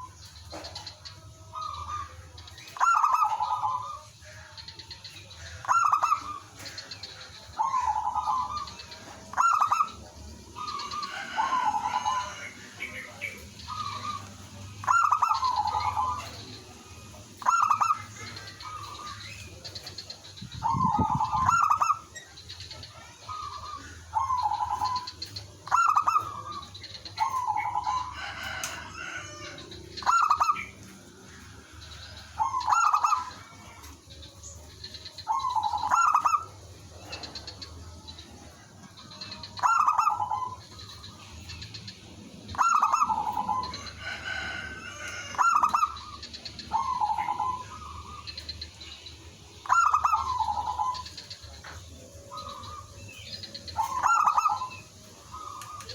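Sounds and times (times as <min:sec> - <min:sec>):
doves cooing: 0:00.0 - 0:55.9.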